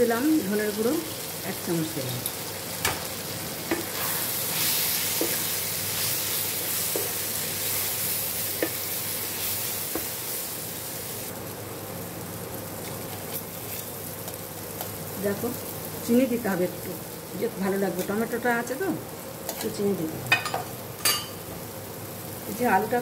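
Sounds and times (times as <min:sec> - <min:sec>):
vegetables sizzling in a pan: 0:00.0 - 0:23.0.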